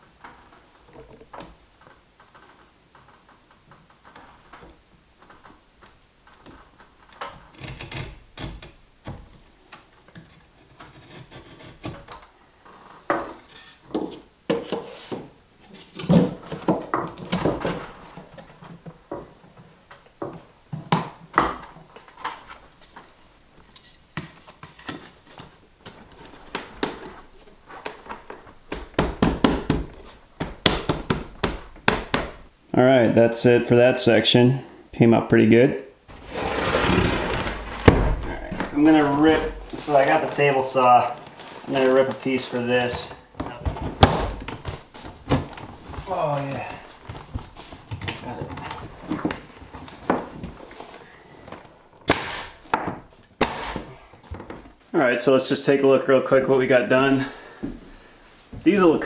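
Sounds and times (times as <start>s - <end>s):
wooden boards knocking and tapping: 24.2s - 32.5s.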